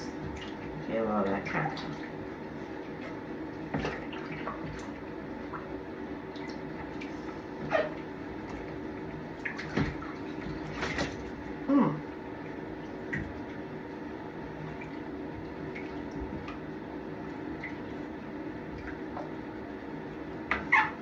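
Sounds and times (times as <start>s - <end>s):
short water splashes: 0.0s - 11.6s
steady low hum: 0.0s - 21.0s
water sloshing and dripping in tub: 0.0s - 21.0s.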